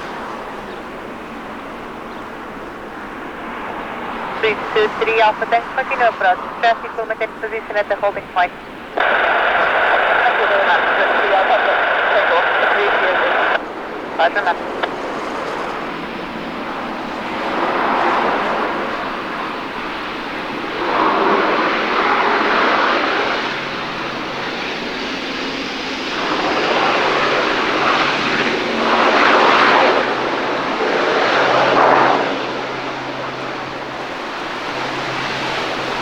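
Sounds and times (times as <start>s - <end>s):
gusty wind: 0.0s - 36.0s
propeller hum: 0.0s - 36.0s.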